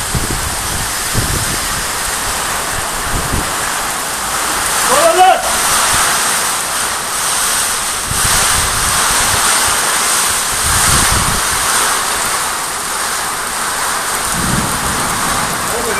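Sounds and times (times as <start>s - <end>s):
heavy rain pouring: 0.0s - 15.9s
wind gusting on microphone: 0.0s - 15.9s.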